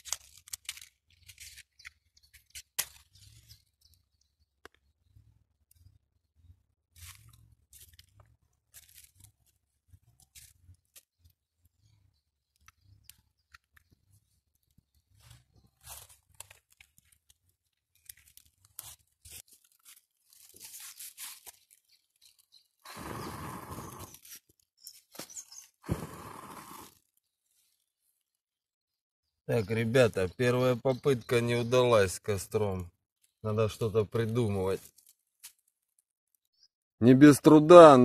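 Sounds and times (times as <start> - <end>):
twigs snapping and crunching: 0.0 - 4.9, 6.9 - 11.4, 12.4 - 22.6, 24.1 - 25.7, 34.1 - 36.5.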